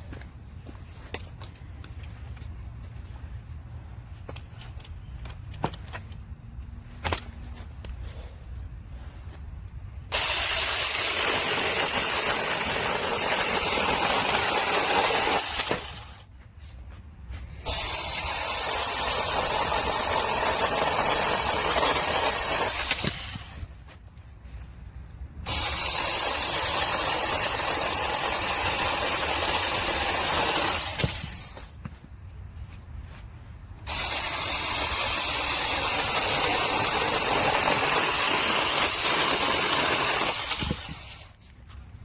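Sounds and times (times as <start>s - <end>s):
chainsaw cutting wood: 10.1s - 16.3s, 17.6s - 23.7s, 25.4s - 31.9s, 33.8s - 41.4s.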